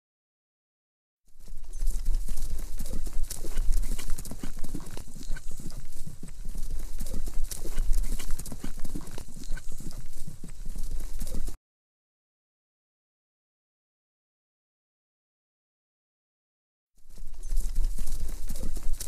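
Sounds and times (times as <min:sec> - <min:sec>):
horse hooves thudding: 0:01.3 - 0:11.6, 0:17.0 - 0:19.0
steady low rumble: 0:01.5 - 0:11.5.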